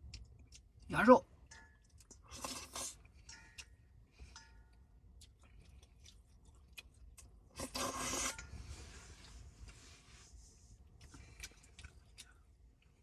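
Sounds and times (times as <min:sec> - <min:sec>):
loud scraping rustle: 0:07.6 - 0:10.4.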